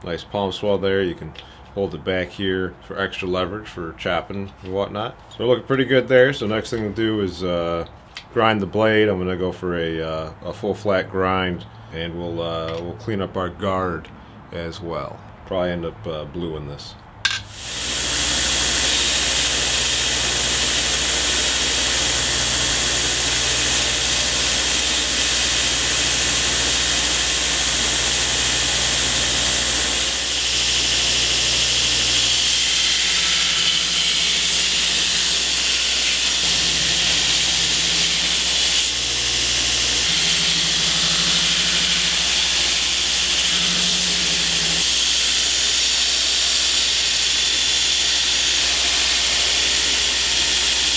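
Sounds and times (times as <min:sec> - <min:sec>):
grinder motor hum: 0:17.3 - 0:50.9
steel grinding on abrasive belt: 0:17.3 - 0:50.9.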